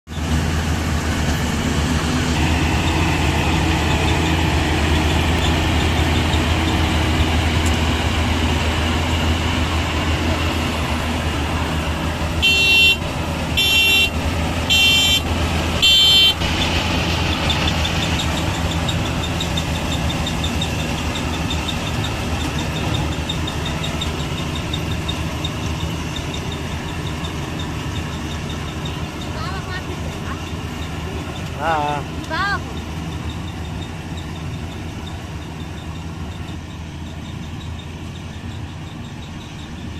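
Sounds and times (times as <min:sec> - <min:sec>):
combine harvester engine running: 0:00.1 - 0:39.9
short horn blasts: 0:12.4 - 0:16.7.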